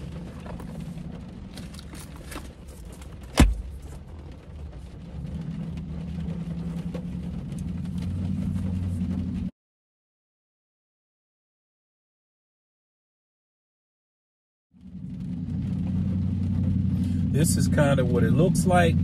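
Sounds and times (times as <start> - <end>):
low hum in car cabin: 0.0 - 9.5, 14.9 - 19.0.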